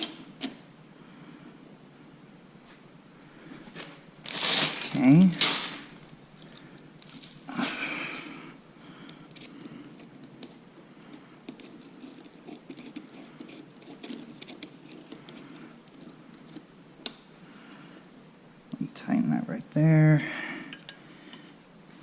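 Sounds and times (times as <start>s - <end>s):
metal tools and bolts clinking: 4.3s - 7.7s, 11.6s - 15.6s.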